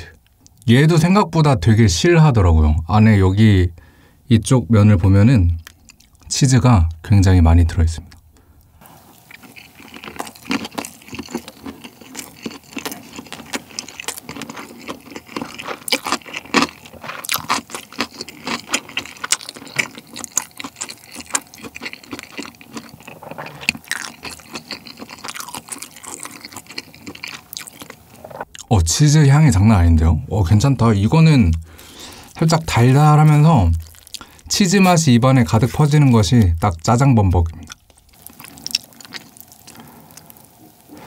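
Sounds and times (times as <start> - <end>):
close-miked chewing: 8.8 - 28.7, 31.5 - 41.0.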